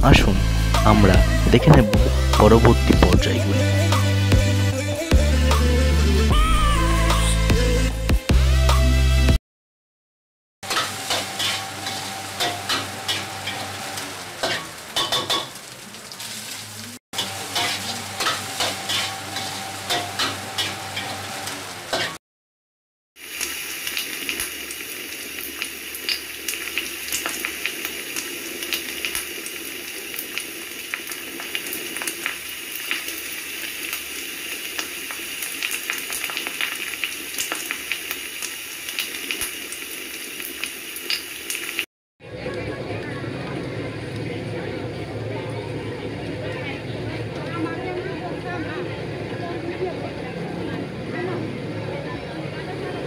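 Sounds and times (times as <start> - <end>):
food sizzling in a wok: 10.6 - 22.2, 23.2 - 41.9
rice sizzling in a frying pan: 10.7 - 22.1, 23.2 - 41.9.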